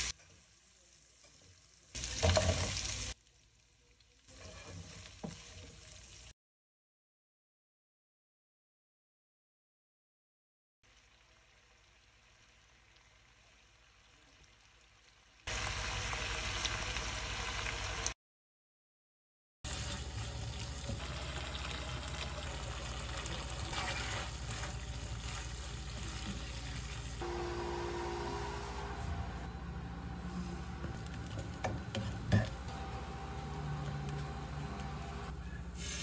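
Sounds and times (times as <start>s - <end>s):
food sizzling in a wok: 0.0s - 6.4s, 10.9s - 18.2s, 19.7s - 29.0s, 31.9s - 36.0s
spatula scraping: 4.3s - 5.6s, 23.7s - 27.0s.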